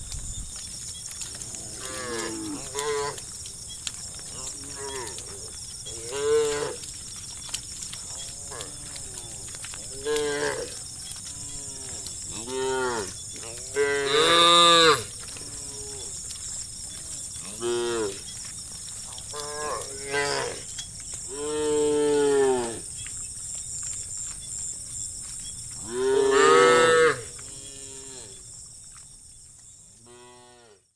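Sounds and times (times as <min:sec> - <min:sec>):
cattle mooing: 0:25.8 - 0:28.4.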